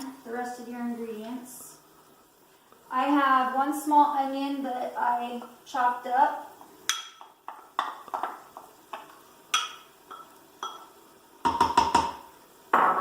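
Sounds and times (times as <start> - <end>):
utensil knocking against pot: 11.4 - 12.2.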